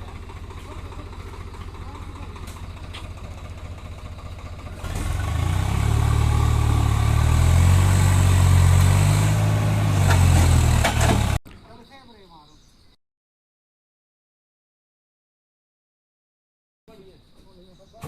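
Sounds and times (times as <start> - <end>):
tractor engine chugging and revving: 0.0 - 11.4.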